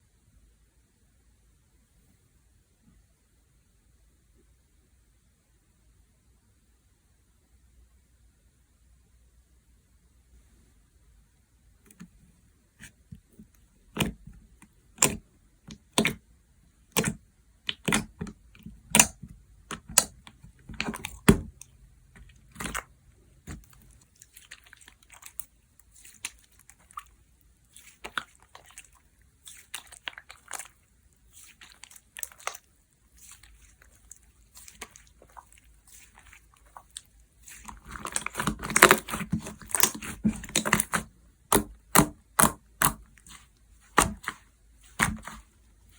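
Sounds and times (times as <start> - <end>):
slime popping and crackling: 15.0 - 16.2, 16.9 - 45.6.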